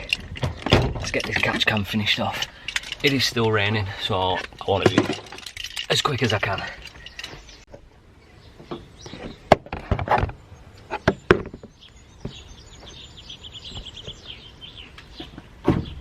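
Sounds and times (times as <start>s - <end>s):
knocks and clicks of parts: 0.0s - 1.9s
songbird chirping: 0.0s - 16.0s.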